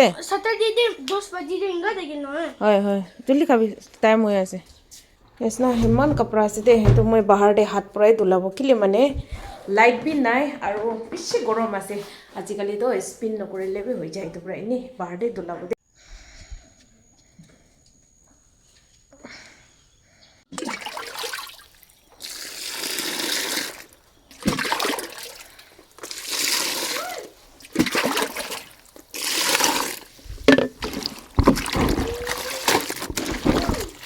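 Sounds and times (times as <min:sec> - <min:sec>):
water splashing and trickling: 0:05.2 - 0:07.4, 0:20.5 - 0:34.0.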